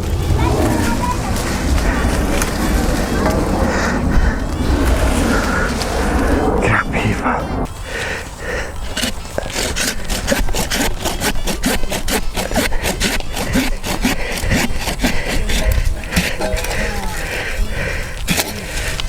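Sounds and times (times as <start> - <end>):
hand saw cutting branch: 7.6 - 19.0.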